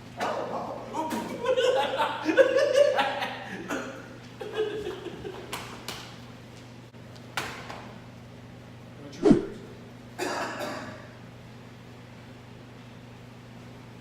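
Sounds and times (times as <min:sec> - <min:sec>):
steady low hum: 0:07.9 - 0:14.0
short hits and swishes: 0:09.2 - 0:09.7.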